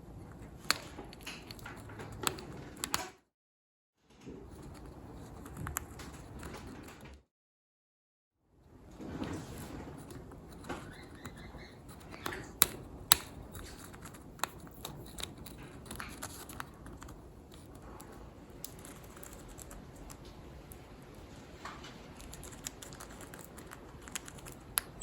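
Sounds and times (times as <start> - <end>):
bird beak chewing and clicking: 22.0 - 25.0.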